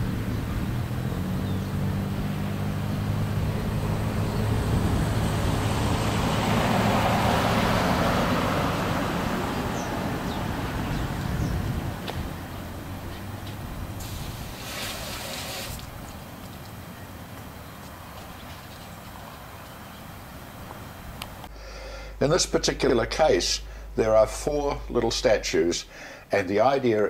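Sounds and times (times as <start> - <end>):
low engine hum: 0.0 - 21.5
vehicle passing: 0.0 - 24.0.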